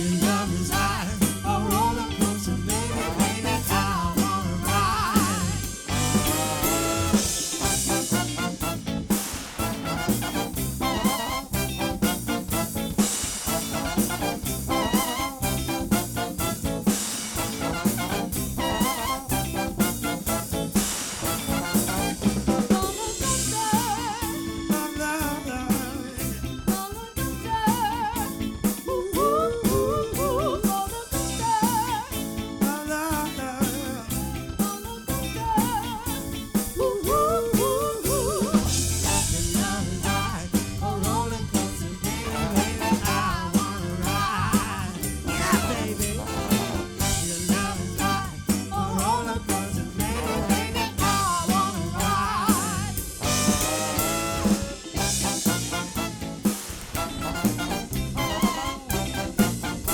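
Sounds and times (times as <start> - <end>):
drum kit beat: 0.0 - 59.9
live soul band playing: 0.0 - 59.9
wavering lead melody: 2.7 - 9.0.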